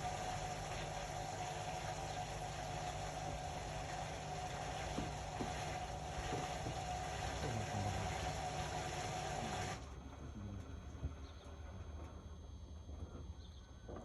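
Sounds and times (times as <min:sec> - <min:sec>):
water rushing in washing machine: 0:00.0 - 0:10.0
washing machine hum: 0:00.0 - 0:14.0.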